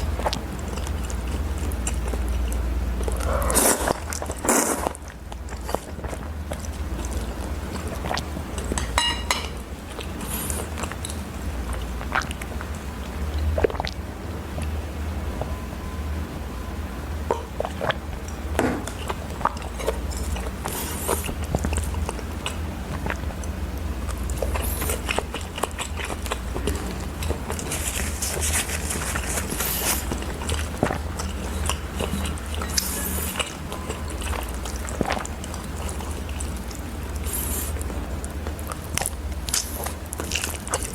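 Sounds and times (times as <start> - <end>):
chewing and mouth smacks: 0.0 - 14.8, 17.2 - 40.9
steady low hum: 0.0 - 40.9
tableware clicks: 8.8 - 9.6.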